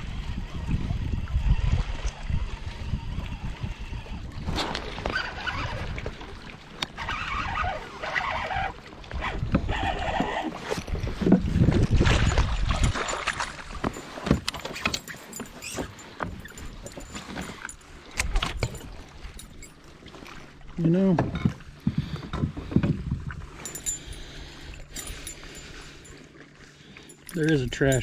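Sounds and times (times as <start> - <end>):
wind buffeting microphone: 0.0 - 6.4, 9.0 - 14.6, 21.2 - 26.1
water splashing around kayak: 0.0 - 28.0
gear knocking on hull: 9.2 - 19.6.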